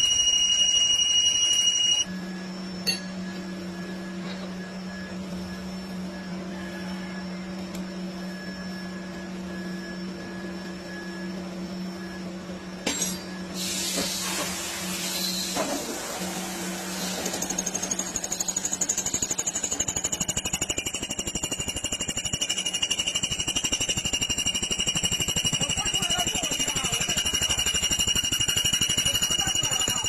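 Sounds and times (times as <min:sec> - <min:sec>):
high-pitched electronic tone: 0:00.0 - 0:03.2.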